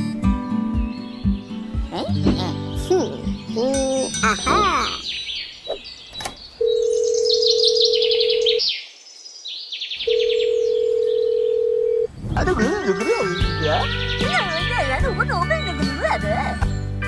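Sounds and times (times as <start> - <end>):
birds chirping: 0.0 - 16.9
warbling tune: 2.1 - 5.0
telephone ringback tone: 6.6 - 8.6, 10.1 - 12.1.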